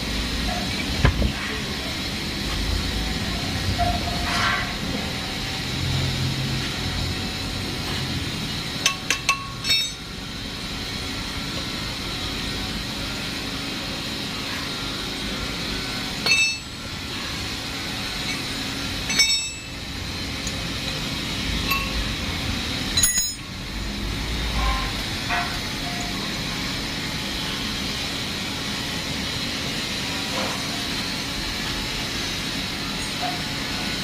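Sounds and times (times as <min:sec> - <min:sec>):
steady background hum: 0:00.0 - 0:34.0
metal parts clinking: 0:08.9 - 0:10.0, 0:23.0 - 0:23.5.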